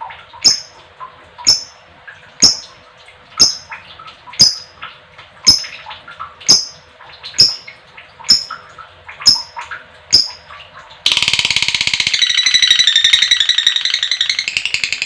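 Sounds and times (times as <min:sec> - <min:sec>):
lovebird shrill calls: 0:11.1 - 0:15.0.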